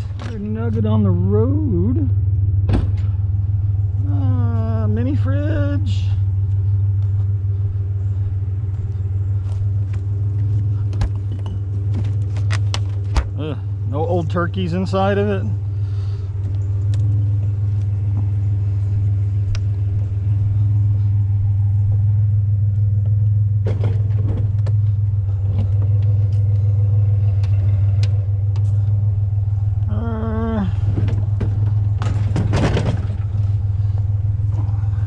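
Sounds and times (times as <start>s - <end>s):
truck engine idling: 0.0s - 35.0s
scrap knocking and clattering: 30.9s - 33.5s.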